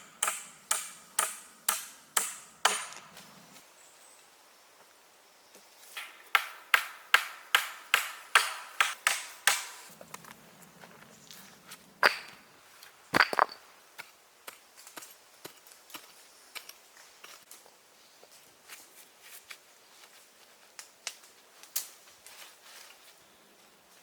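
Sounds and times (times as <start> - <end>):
sharp cracking knocks: 0.0 - 3.2, 6.0 - 9.9, 12.0 - 12.4.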